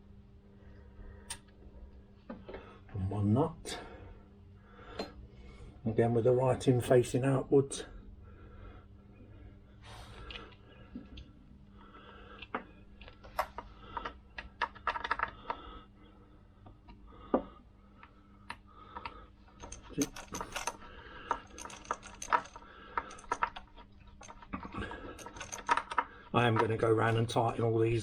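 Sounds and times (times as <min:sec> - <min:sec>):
faint steady hum: 0:00.0 - 0:28.0
small metal parts clicking: 0:12.4 - 0:15.6, 0:18.9 - 0:27.4.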